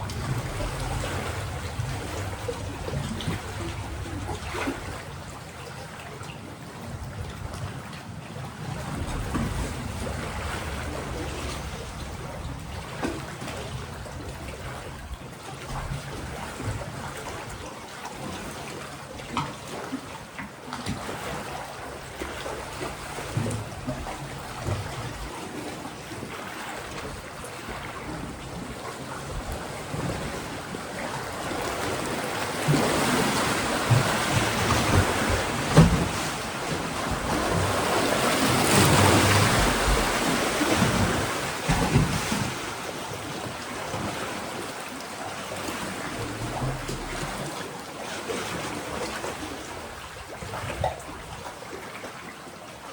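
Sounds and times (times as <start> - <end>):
waves breaking on rocks: 0.0 - 6.1, 20.7 - 52.0.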